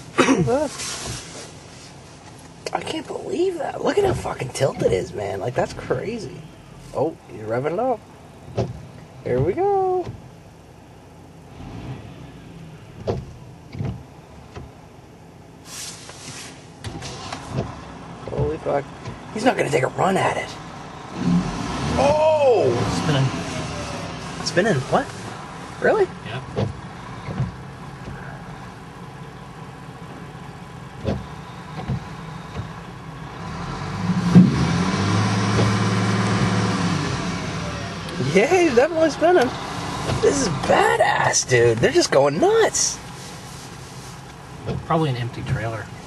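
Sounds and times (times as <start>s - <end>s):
brief hiss: 0.6s - 2.2s, 15.6s - 17.5s
distant truck engine revving: 11.2s - 14.9s, 16.7s - 43.2s
short knocks: 26.4s - 28.3s.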